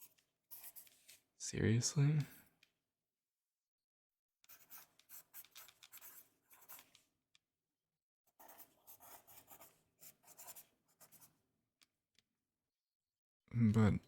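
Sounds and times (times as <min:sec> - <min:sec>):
pencil writing on paper: 0:00.0 - 0:01.0, 0:04.5 - 0:07.0, 0:08.3 - 0:11.4.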